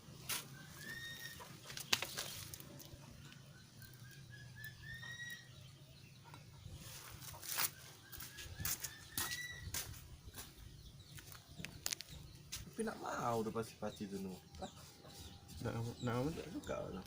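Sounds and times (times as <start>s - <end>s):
bird chirping: 0.0s - 17.0s.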